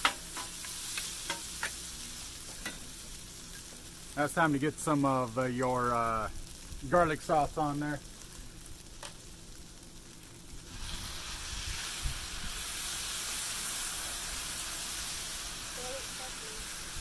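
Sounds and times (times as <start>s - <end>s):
noodles sizzling on a griddle: 0.0s - 17.0s.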